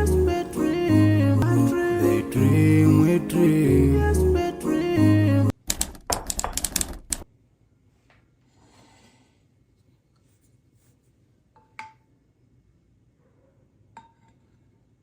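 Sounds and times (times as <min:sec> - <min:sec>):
sharp clicks and knocks: 0:05.7 - 0:07.3.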